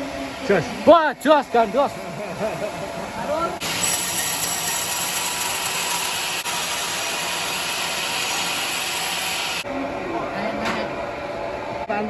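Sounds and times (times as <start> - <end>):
faint machine hum: 0.0 - 5.4, 9.6 - 12.0
band saw cutting log: 3.6 - 9.6.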